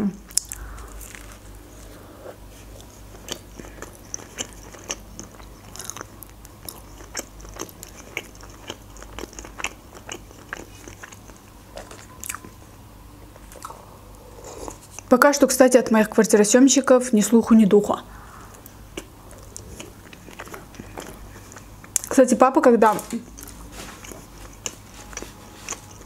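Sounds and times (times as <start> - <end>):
person chewing burger: 0.3 - 12.6, 13.5 - 15.1, 18.5 - 22.1, 23.2 - 26.0.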